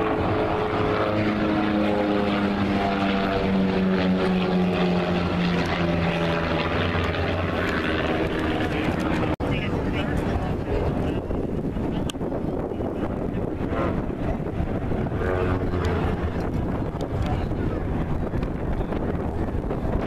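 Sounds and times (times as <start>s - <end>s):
propeller airplane flying past: 0.0s - 20.0s.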